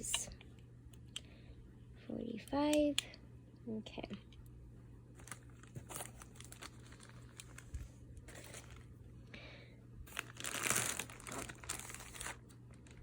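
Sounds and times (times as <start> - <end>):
packaging crinkling and rustling: 5.1 - 9.0, 10.1 - 13.0.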